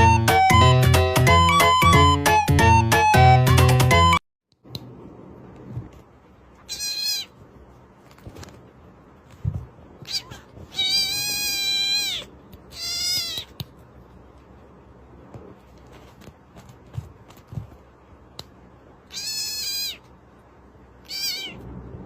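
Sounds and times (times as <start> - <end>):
cat meowing: 6.6 - 7.4, 10.0 - 13.6, 19.0 - 20.1, 21.0 - 21.6.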